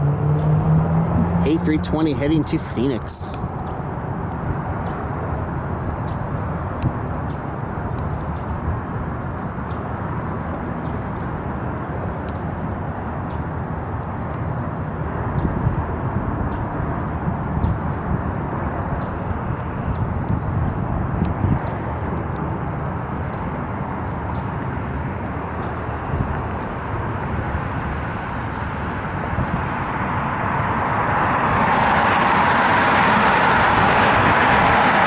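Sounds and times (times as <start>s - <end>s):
jet engines rumbling: 0.0s - 7.8s, 23.4s - 35.0s.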